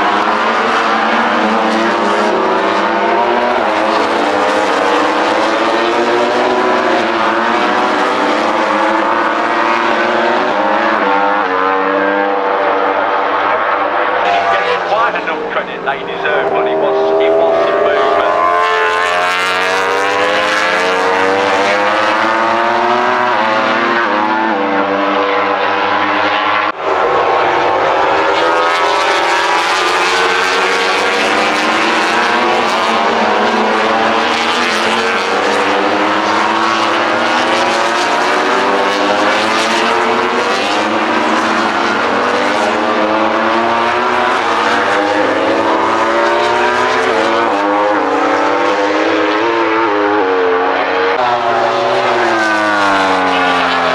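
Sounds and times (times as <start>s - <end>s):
racing motorcycle engines revving: 0.0s - 53.9s.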